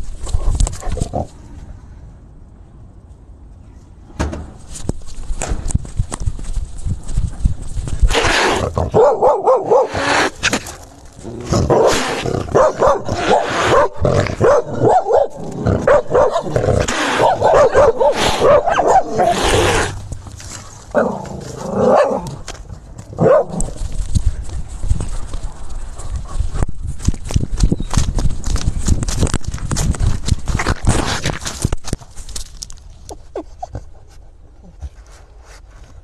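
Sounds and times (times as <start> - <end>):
dogs barking and growling: 8.2 - 10.5, 11.2 - 20.0, 20.9 - 22.5, 23.1 - 23.8.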